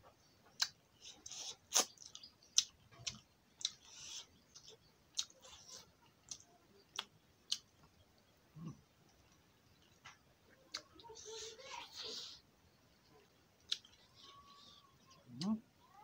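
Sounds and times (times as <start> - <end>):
fingers squishing rice: 0.5 - 8.0.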